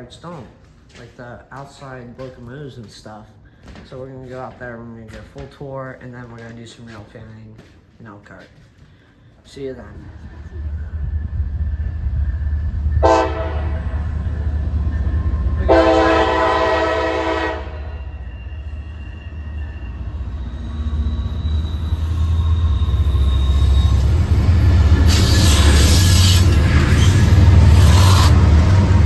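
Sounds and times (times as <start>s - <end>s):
rail and wheel noise: 9.6s - 29.0s
train rumble: 9.8s - 29.0s
train horn blasts: 13.0s - 14.0s, 15.5s - 18.3s.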